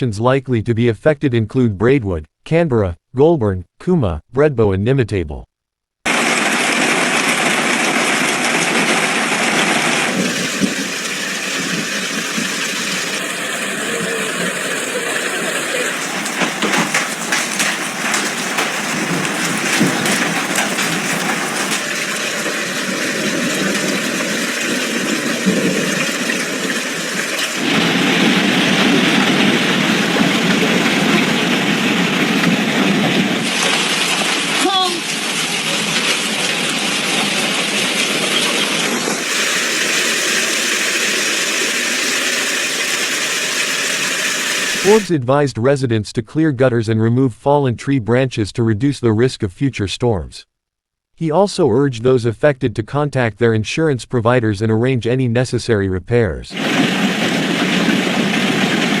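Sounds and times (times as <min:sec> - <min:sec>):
heavy rain pouring: 0:06.1 - 0:45.1, 0:56.5 - 0:59.0
sharp rain patter: 0:06.1 - 0:45.1, 0:56.6 - 0:59.0.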